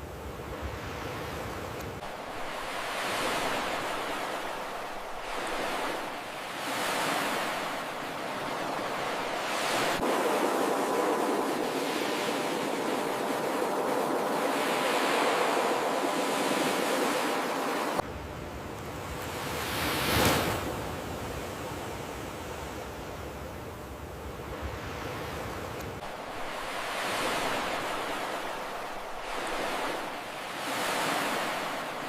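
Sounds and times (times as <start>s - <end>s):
ocean surf breaking on beach: 0.0s - 18.0s, 24.6s - 32.0s.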